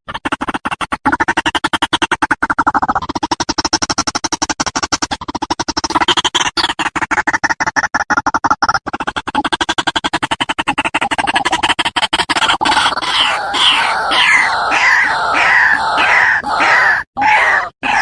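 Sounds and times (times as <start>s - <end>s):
waterhen rattling call: 12.6s - 18.0s.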